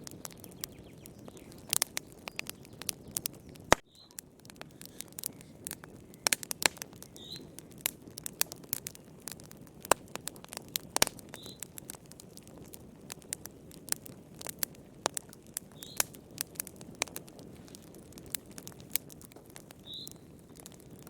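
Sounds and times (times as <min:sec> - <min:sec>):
fire crackling and popping: 0:00.0 - 0:21.0
faint high chirp: 0:03.9 - 0:04.2, 0:19.9 - 0:20.2
low rush of flame: 0:04.4 - 0:19.7.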